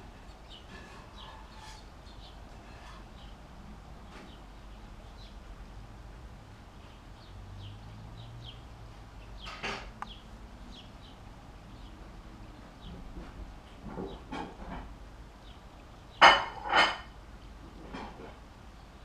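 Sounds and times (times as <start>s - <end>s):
birds chirping: 0.0s - 5.4s, 6.6s - 14.3s, 15.2s - 16.4s.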